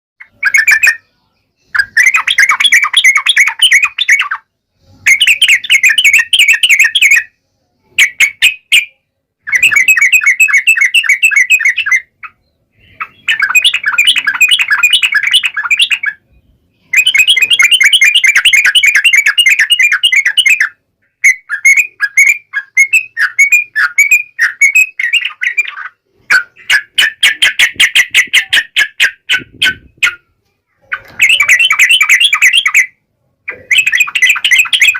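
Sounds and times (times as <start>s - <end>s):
bird singing bubbling chatter: 0.2s - 34.9s.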